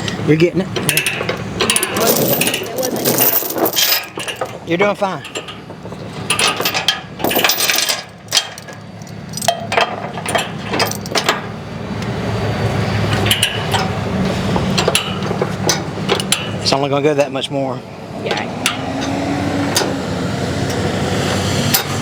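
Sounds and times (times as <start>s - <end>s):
chains clinking and clanking: 0.8s - 11.5s.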